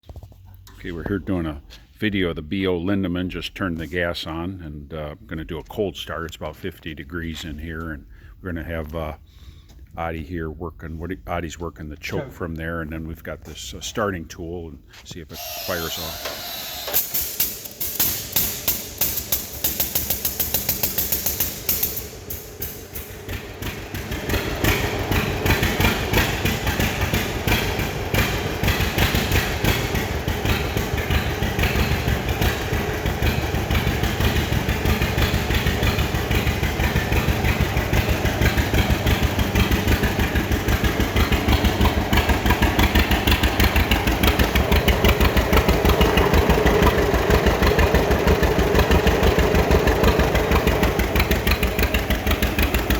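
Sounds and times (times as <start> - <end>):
engine being turned over: 15.4 - 52.9
two-cylinder engine idling: 17.6 - 52.9.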